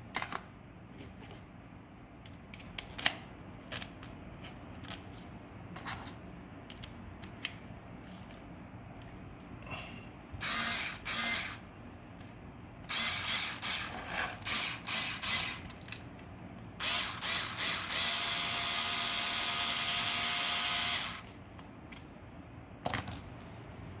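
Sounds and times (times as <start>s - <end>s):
cordless electric drill running: 10.4s - 11.6s, 12.9s - 13.9s, 14.5s - 15.6s, 16.8s - 21.3s.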